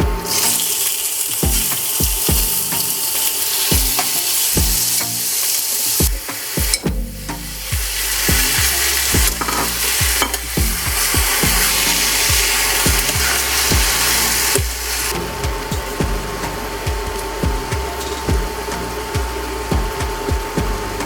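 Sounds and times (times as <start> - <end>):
background music with beat: 0.0 - 21.0
pork sizzling in a hot pan: 0.2 - 15.2.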